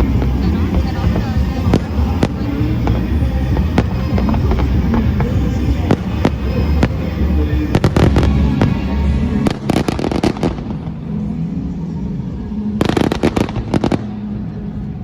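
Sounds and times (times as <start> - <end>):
fireworks crackling bangs: 0.0 - 11.1.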